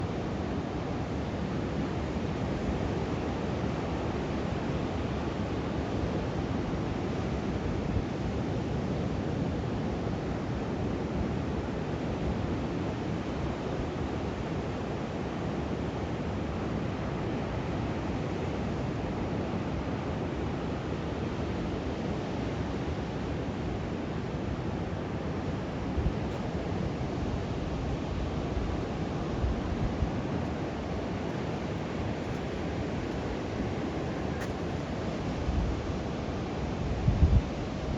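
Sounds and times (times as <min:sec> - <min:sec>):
ocean surf on a beach: 0:00.0 - 0:37.9
wind on the microphone: 0:24.6 - 0:37.9.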